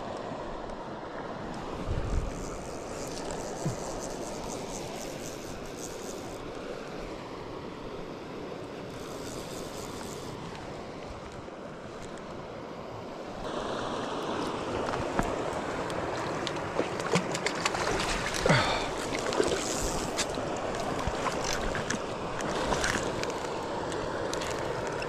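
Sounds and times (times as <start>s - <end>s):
flowing river water: 0.0s - 25.0s
wind buffeting microphone: 1.8s - 2.8s.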